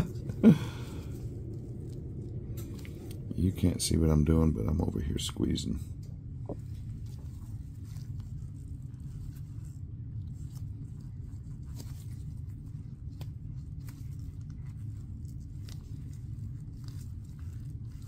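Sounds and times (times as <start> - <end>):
steady low hum: 0.0 - 18.0
hands rubbing silicone mold: 6.4 - 18.0.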